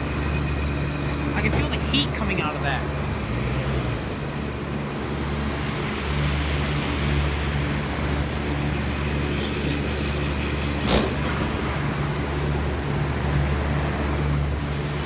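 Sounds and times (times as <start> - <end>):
sharp knock: 10.8 - 11.4.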